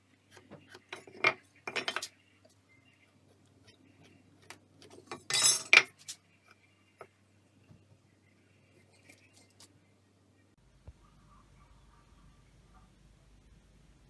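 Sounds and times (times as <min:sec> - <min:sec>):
metal clinking: 0:05.1 - 0:06.2.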